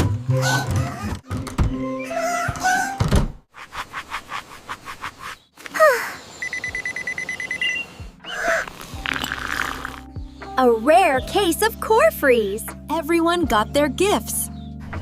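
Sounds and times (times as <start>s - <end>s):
pulsing electronic beep: 6.4s - 7.9s.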